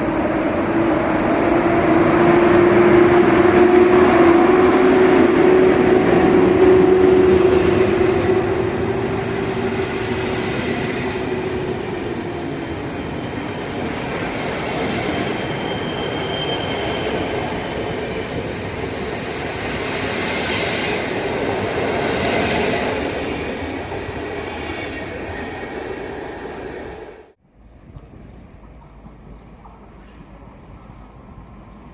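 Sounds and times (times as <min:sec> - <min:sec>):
freight train rumbling past: 0:00.0 - 0:27.8
train wheel squeal: 0:03.6 - 0:18.4.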